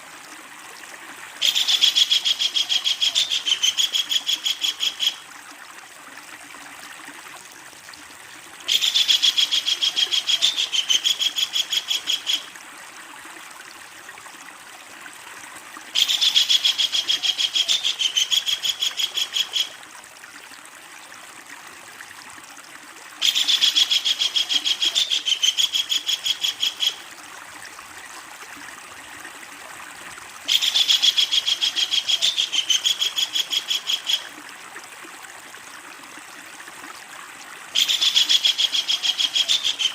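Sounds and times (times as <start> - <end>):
kingfisher chattering call: 1.4 - 5.2, 23.2 - 27.0, 30.5 - 34.2, 37.8 - 39.9.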